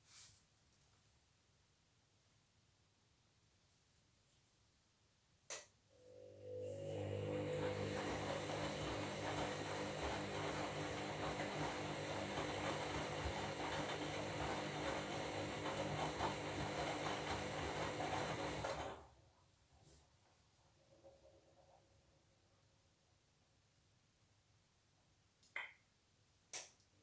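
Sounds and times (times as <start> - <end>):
motor hum: 6.0 - 19.0
washing machine drum churning: 6.7 - 19.0.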